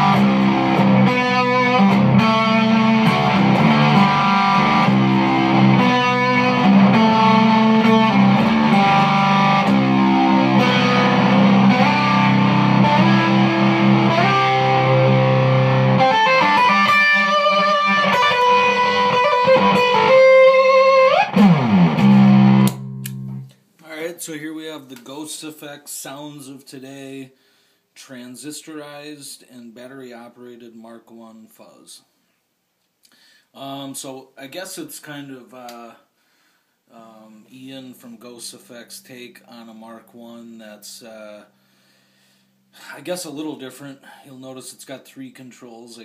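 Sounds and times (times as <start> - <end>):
fuzz electric guitar: 0.0 - 23.5.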